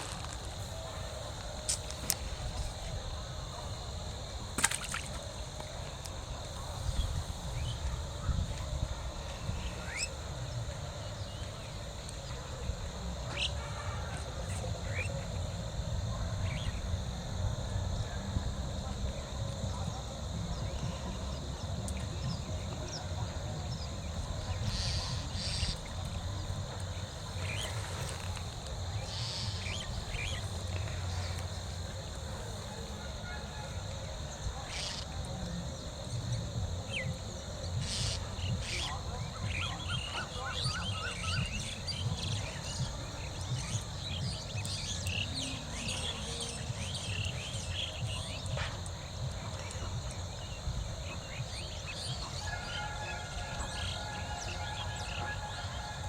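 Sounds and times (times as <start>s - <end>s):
water splash: 4.6s - 5.2s.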